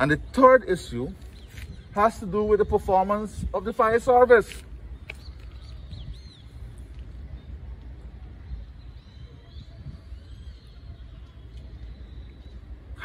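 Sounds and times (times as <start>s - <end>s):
faint bird chirps: 4.9s - 13.0s.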